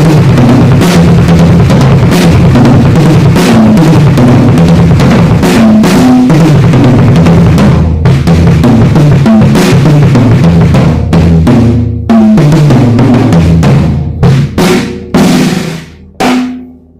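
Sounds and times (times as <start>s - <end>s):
drum kit played hard: 0.0s - 16.9s
cymbals ringing: 14.7s - 16.9s.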